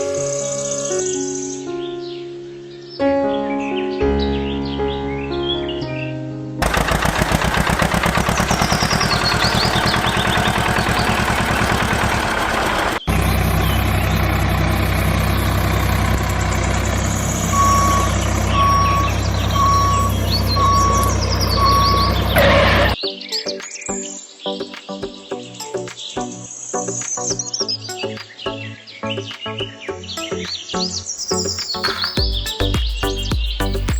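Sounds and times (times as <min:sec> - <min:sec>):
engine running steadily: 0:06.6 - 0:23.0
small engine rattling: 0:06.6 - 0:23.0
reversing alarm beeping: 0:08.9 - 0:23.0.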